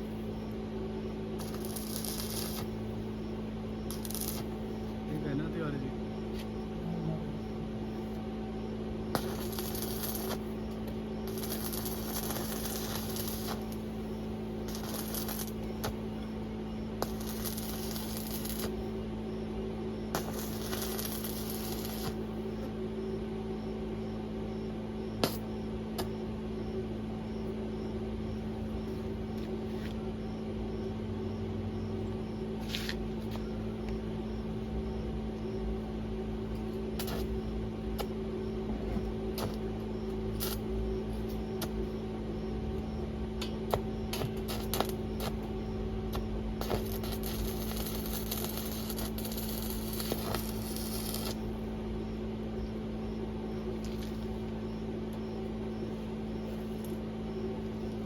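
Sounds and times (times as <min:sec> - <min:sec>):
steady electrical hum: 0:00.0 - 0:58.0
electric arc welding crackle: 0:01.4 - 0:05.9, 0:09.1 - 0:19.0, 0:20.1 - 0:22.7, 0:25.2 - 0:26.1, 0:36.5 - 0:38.1, 0:39.3 - 0:41.8, 0:43.7 - 0:51.7.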